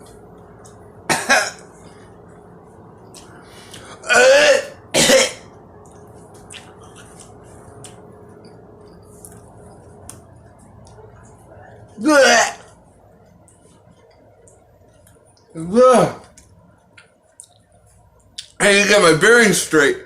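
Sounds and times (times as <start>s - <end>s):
man coughing: 1.1s - 1.6s, 4.0s - 5.5s.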